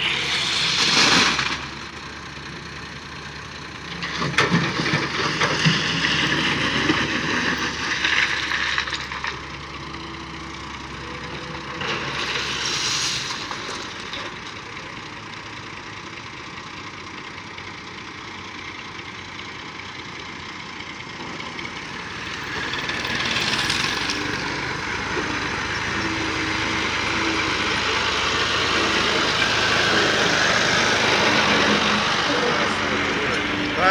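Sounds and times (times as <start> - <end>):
heavy machinery engine running: 0.0 - 33.9.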